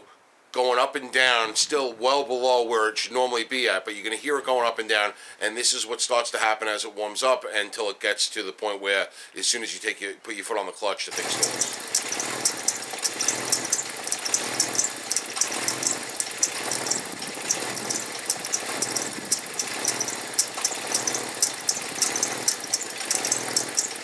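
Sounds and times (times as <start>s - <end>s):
rapid clicking: 11.1s - 24.0s
car engine idling unevenly: 11.2s - 24.0s.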